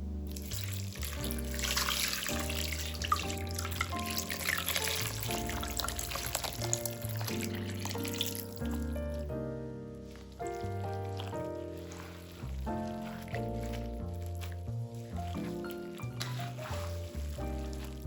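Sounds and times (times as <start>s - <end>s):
background music: 0.0s - 18.0s
tap water running into sink: 0.3s - 8.9s.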